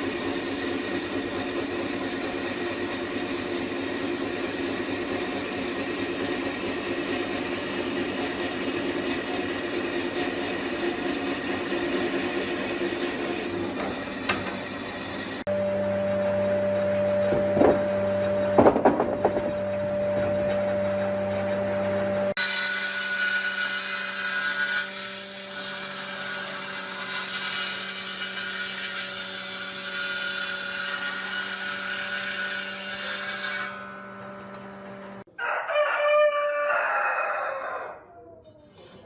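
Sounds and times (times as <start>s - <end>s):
rooster crowing: 35.3s - 38.7s.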